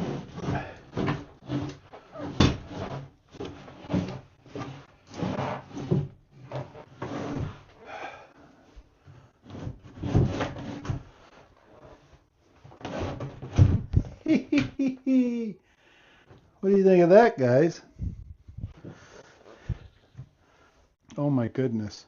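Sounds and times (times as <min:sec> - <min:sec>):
bathtub knocking and scraping: 0:00.0 - 0:07.8, 0:08.8 - 0:14.8.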